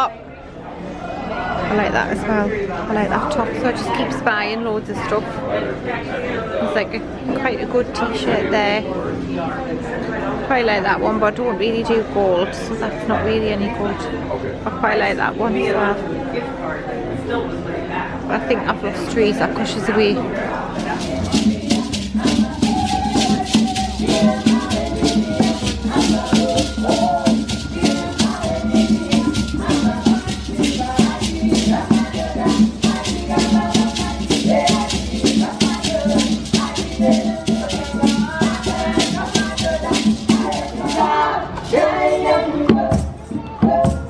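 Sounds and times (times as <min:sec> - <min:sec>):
people singing: 0:18.2 - 0:44.0
hand shakers rattling: 0:20.8 - 0:43.9.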